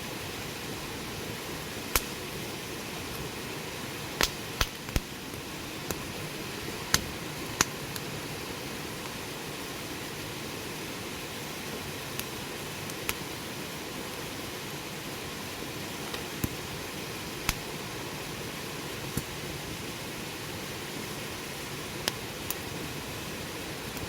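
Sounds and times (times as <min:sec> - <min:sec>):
campfire hissing: 0:00.0 - 0:24.0
fire pops and crackles: 0:01.8 - 0:02.3, 0:04.1 - 0:08.1, 0:12.1 - 0:13.3, 0:16.0 - 0:16.7, 0:17.3 - 0:17.9, 0:19.0 - 0:19.4, 0:21.7 - 0:22.7, 0:23.8 - 0:24.0.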